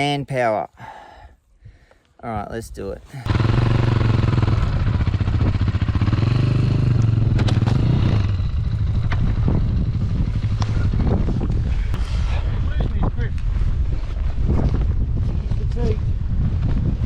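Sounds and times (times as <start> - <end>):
dirt bike engine revving: 3.2 - 11.4.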